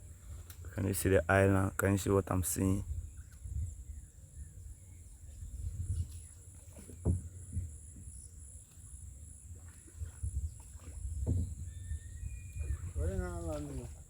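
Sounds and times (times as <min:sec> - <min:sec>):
insects chirring: 0:00.0 - 0:14.0
short low thump: 0:07.0 - 0:07.8, 0:11.2 - 0:11.7.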